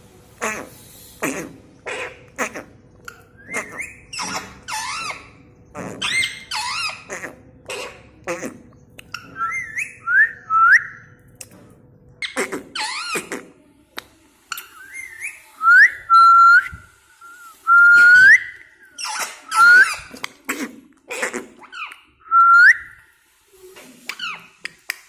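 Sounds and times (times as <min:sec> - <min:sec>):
parrot chattering calls: 0:00.4 - 0:10.0, 0:14.6 - 0:20.3
parrot whistling: 0:09.4 - 0:11.0, 0:14.8 - 0:20.1, 0:22.2 - 0:23.0.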